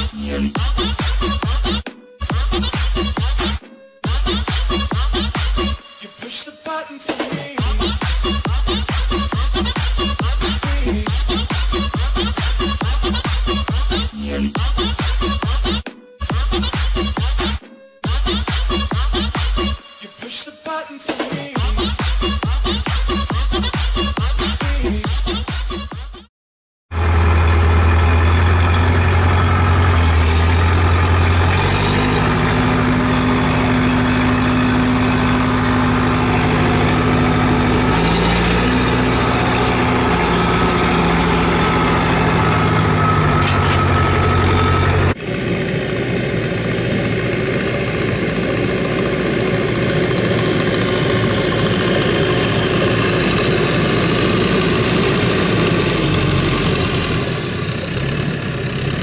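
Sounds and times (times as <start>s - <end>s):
tractor diesel engine running: 26.9s - 59.0s.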